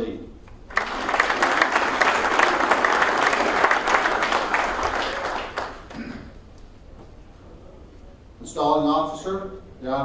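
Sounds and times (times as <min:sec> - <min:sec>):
audience applauding: 0:00.7 - 0:06.4.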